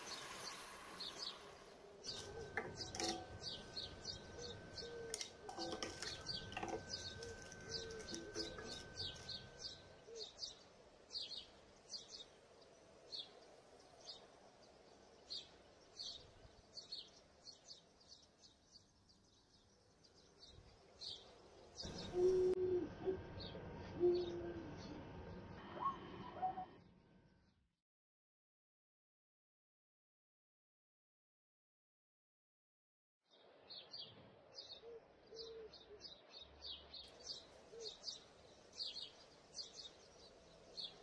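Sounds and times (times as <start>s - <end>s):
lower drawn-out bird calls: 0.0s - 10.4s, 21.8s - 26.9s
small bird chirping: 0.0s - 22.6s.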